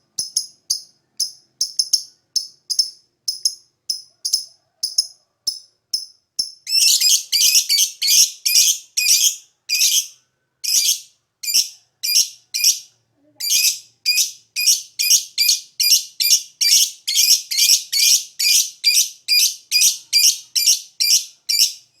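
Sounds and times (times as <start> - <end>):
lovebird chattering: 0.2 - 10.1.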